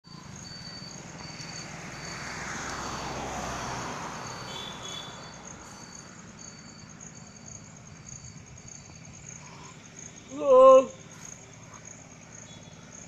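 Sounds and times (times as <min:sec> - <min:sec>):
passing engine: 0:00.0 - 0:13.0
insect chirping in short pulses: 0:00.1 - 0:13.0
insect high trill: 0:00.1 - 0:13.0.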